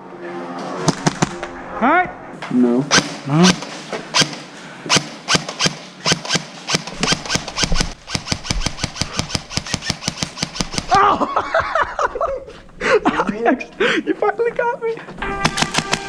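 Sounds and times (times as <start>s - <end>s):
airsoft guns firing: 0.9s - 1.4s, 2.9s - 11.0s, 15.2s - 16.0s.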